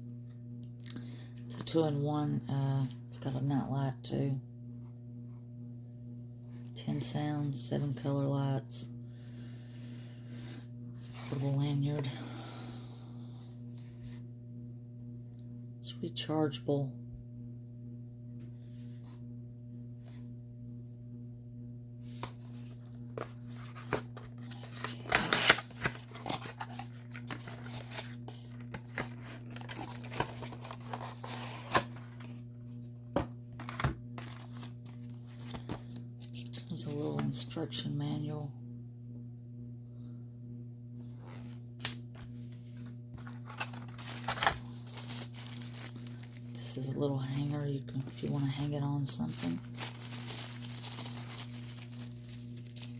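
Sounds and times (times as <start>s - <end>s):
steady low hum: 0.0s - 52.9s
packaging rustling and tearing: 22.2s - 32.3s, 33.6s - 36.5s, 43.2s - 46.7s, 47.3s - 52.9s.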